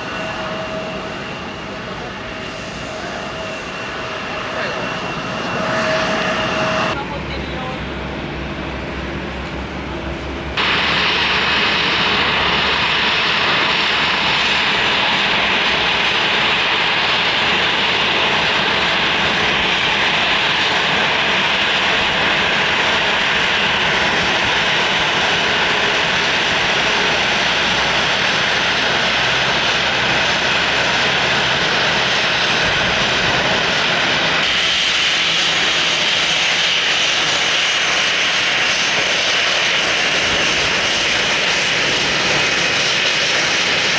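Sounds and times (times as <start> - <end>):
airliner engines running loud: 0.0 - 43.9.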